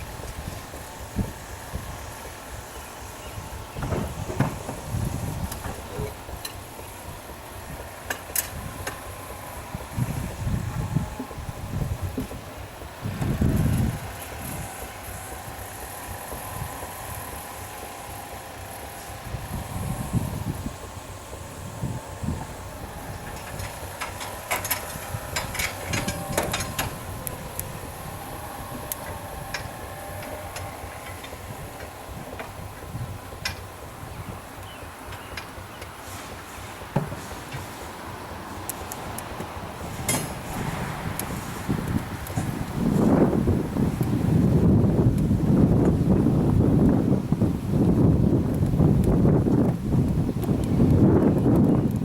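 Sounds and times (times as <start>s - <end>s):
low rumbles: 0.0s - 52.0s
steam engine hissing: 0.0s - 52.0s
model steam engine clicks and knocks: 3.8s - 11.5s, 22.6s - 36.0s.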